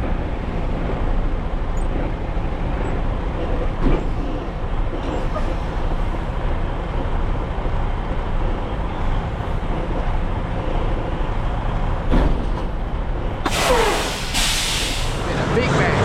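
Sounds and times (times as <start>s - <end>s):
loud hissing bursts: 13.5s - 15.4s.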